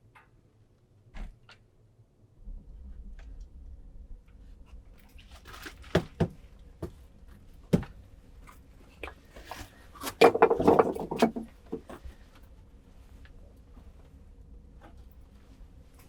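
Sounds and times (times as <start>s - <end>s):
clattering and rustling: 5.0s - 12.4s.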